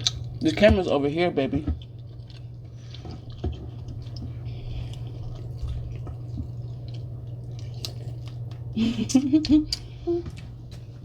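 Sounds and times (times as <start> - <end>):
person chewing: 0.0 - 1.0, 1.6 - 10.9
wet squishing of food: 0.0 - 8.8
steady low hum: 0.0 - 11.0.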